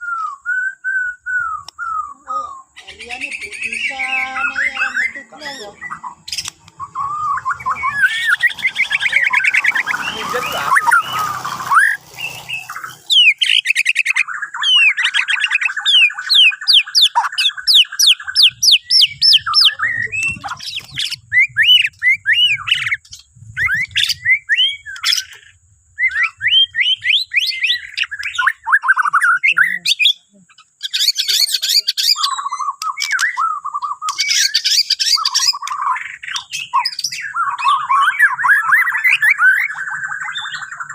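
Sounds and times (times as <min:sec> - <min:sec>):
bird singing whistled song: 0:00.0 - 0:40.9.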